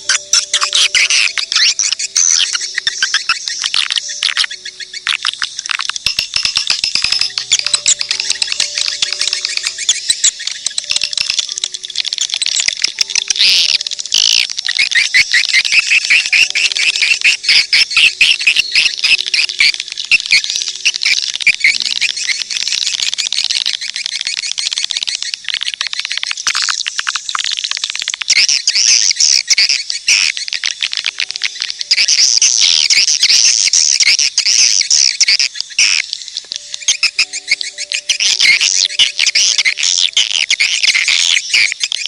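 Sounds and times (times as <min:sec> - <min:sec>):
swiftlet sweeping calls: 0:00.0 - 0:25.1, 0:31.1 - 0:42.0
swiftlets chirping and twittering: 0:00.0 - 0:42.0.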